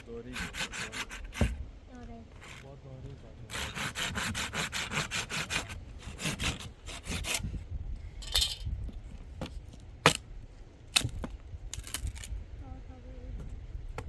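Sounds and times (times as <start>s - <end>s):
rapid rasping strokes: 0.0s - 1.6s, 3.4s - 7.4s.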